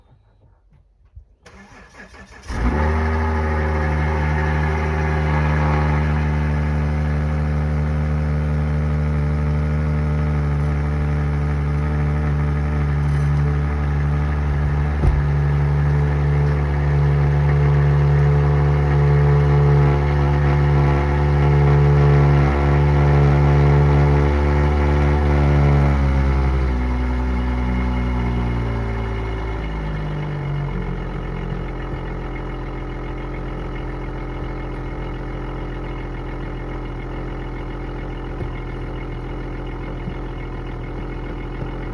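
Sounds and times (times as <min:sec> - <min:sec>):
car engine cranking: 0:01.4 - 0:41.9
car engine idling: 0:01.5 - 0:41.9
short knock: 0:14.7 - 0:15.6.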